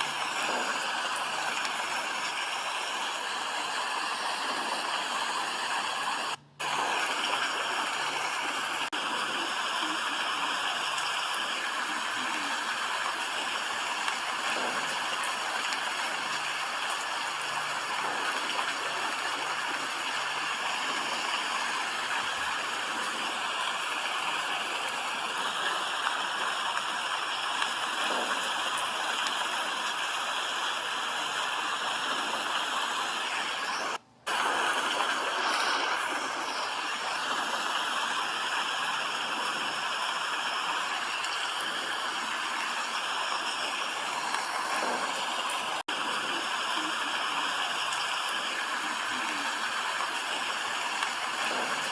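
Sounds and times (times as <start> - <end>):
steady rain hiss: 0.0 - 51.9.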